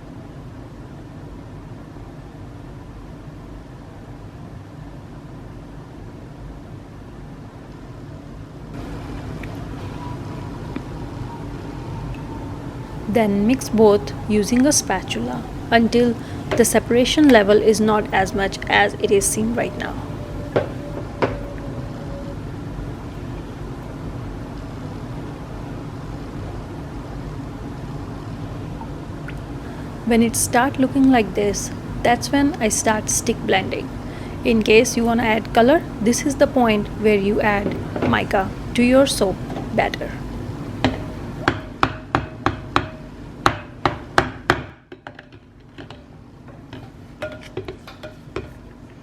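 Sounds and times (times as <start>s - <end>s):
steady low hum: 6.4s - 26.3s, 29.1s - 41.9s
utensil knocking against container: 46.7s - 48.6s.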